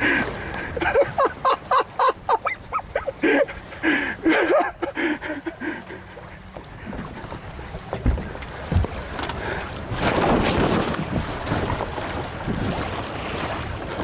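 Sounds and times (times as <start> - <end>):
sea water rushing: 0.0 - 14.0
wind: 0.0 - 14.0
low thumps: 6.9 - 9.1.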